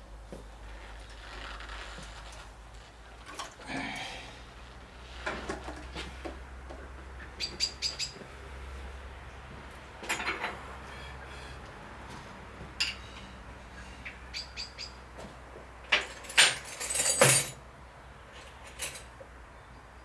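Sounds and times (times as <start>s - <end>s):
rustling or scraping: 0.3s - 6.2s
small bird peeping: 7.2s - 8.2s, 14.3s - 15.0s.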